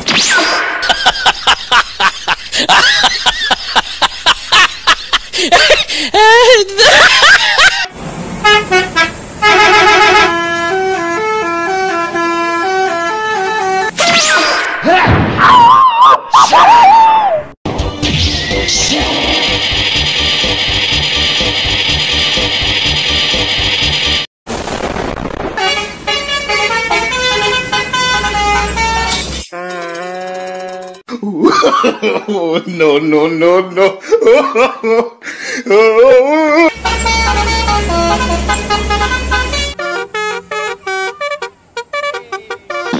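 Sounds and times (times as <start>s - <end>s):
multi-tone bus horn melody: 8.4s - 13.9s, 25.6s - 31.0s, 36.7s - 42.9s.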